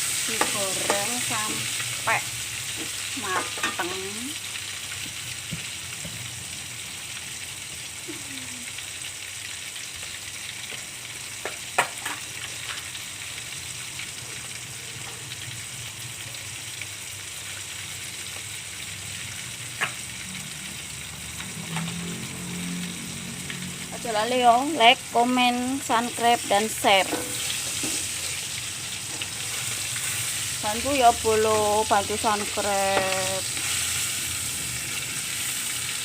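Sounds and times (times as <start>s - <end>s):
food sizzling in hot oil: 0.0s - 36.0s.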